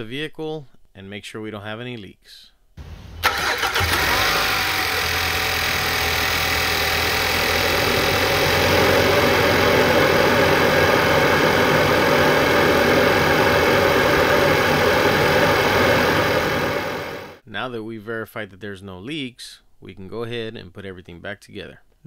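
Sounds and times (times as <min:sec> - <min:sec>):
car engine starting and idling: 0:02.8 - 0:17.4
loud rushing intake air: 0:02.8 - 0:17.4.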